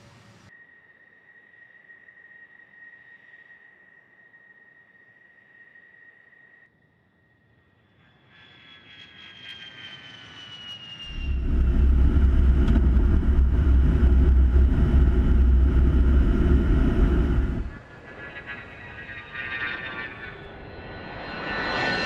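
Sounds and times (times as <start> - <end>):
jet engine whine: 6.9 - 22.0
loud low rumble: 11.1 - 17.9.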